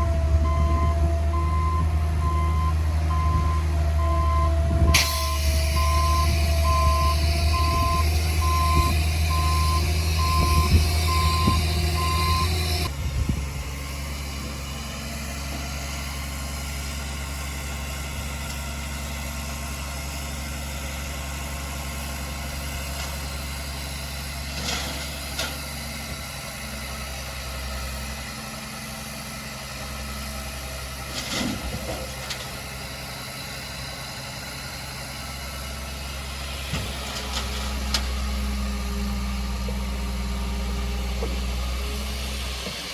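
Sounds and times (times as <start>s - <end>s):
diesel engine running: 0.0s - 42.9s
backup alarm beeping: 0.4s - 12.9s.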